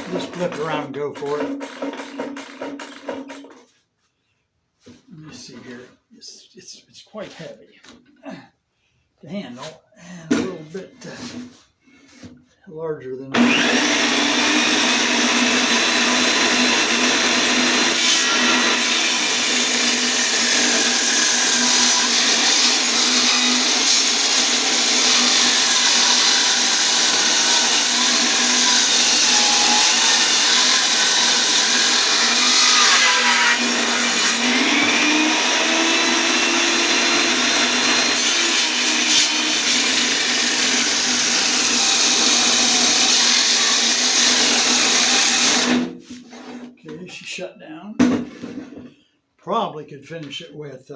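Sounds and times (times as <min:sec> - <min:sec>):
electric saw cutting log: 0:00.0 - 0:03.6, 0:13.4 - 0:46.0.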